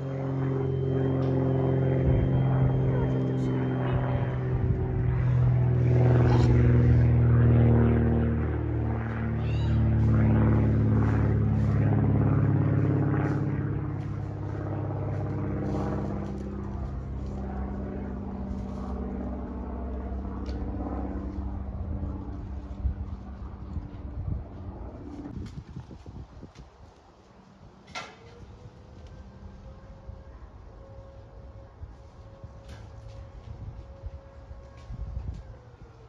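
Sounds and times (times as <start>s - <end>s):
engine humming: 0.0s - 25.4s.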